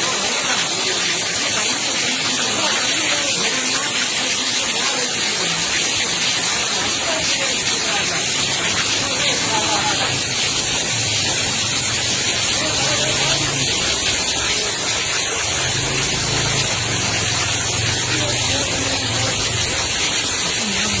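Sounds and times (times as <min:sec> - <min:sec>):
heavy rain and running water: 0:00.0 - 0:21.0.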